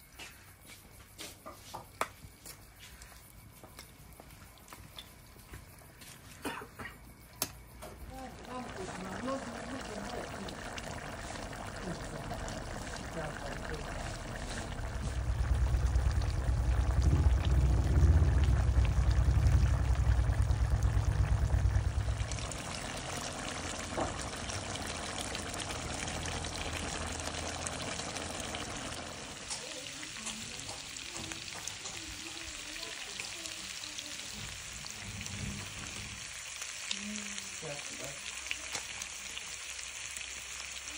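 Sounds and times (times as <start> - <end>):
meat sizzling in a wok: 7.0 - 40.9
loud low rumble: 13.3 - 29.1.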